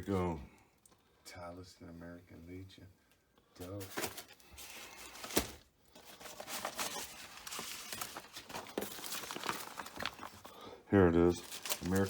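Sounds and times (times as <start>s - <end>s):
paper rustling: 3.6s - 12.0s.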